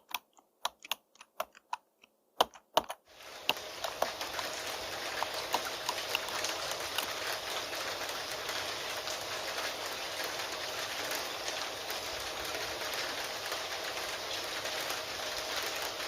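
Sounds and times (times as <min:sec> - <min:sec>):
keyboard typing: 0:00.0 - 0:07.7
steady rain: 0:03.1 - 0:16.0.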